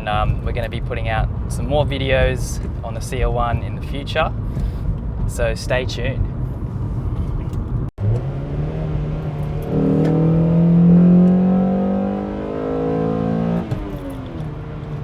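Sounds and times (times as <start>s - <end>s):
car engine accelerating: 7.2s - 15.0s.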